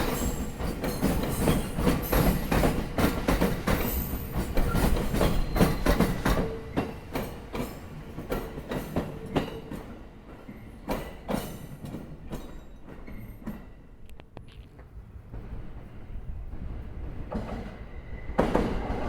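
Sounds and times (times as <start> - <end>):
train wheels clacking over rail joints: 0.0 - 10.0.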